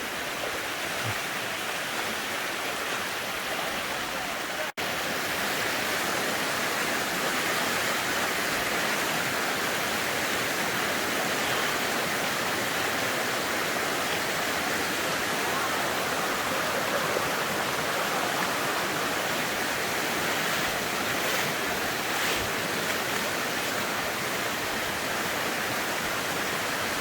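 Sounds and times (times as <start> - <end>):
rushing stream water: 0.0 - 27.0.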